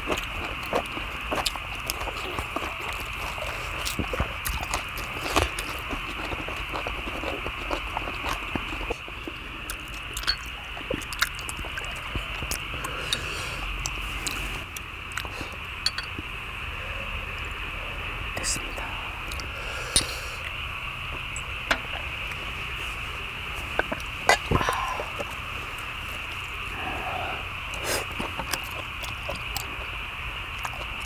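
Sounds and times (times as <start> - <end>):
people chewing food: 0.0 - 31.0
steady high hiss: 12.7 - 30.6.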